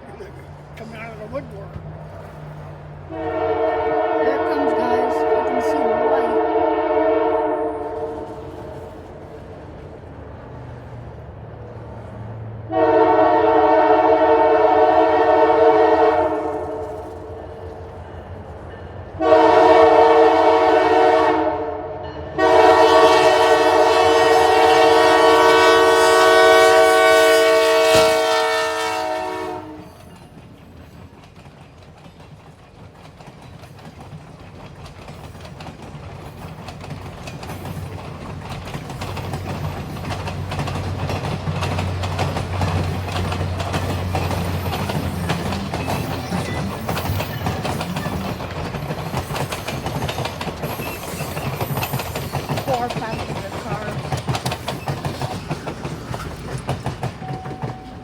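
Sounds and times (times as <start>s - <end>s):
train rumble: 0.0s - 58.0s
locomotive air horn blasts: 3.1s - 8.9s, 12.7s - 17.4s, 19.2s - 30.0s.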